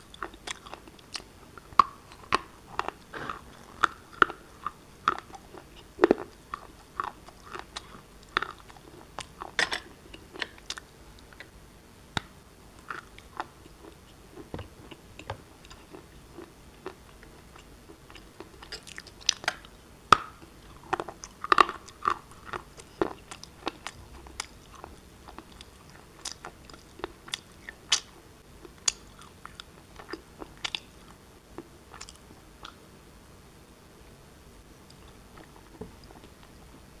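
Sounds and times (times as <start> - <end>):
chewing rock crunches: 0.2 - 10.8.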